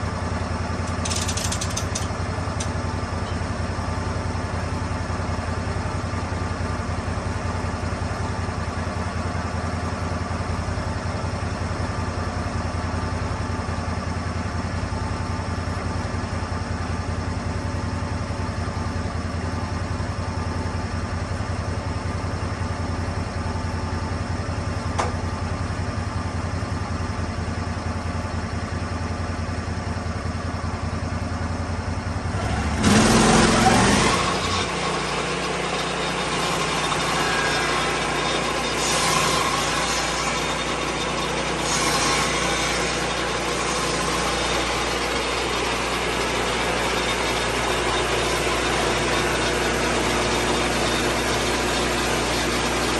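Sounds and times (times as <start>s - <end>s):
sawmill engine running: 0.0s - 52.9s
click: 0.8s - 2.8s.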